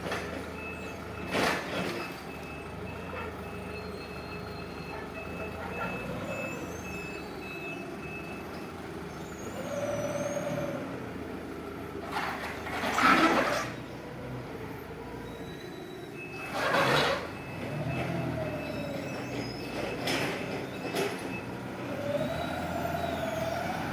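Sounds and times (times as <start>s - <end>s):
forklift engine running: 0.0s - 23.9s
reversing alarm beeping: 0.5s - 10.4s, 15.2s - 23.9s.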